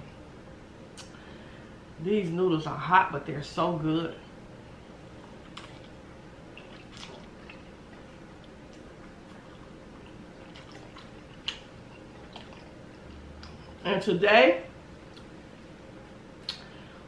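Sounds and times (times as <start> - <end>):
person chewing noodles: 5.1 - 13.6.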